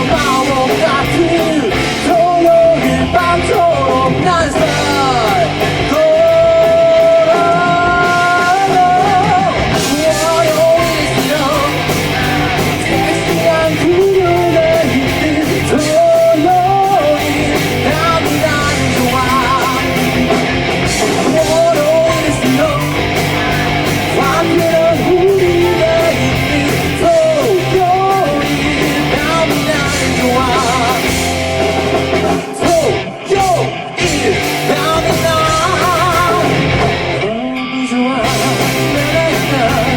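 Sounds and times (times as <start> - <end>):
steady drum beat: 0.0 - 37.3, 38.2 - 39.9
lead singer: 0.0 - 39.9
rock band playing: 0.0 - 39.9.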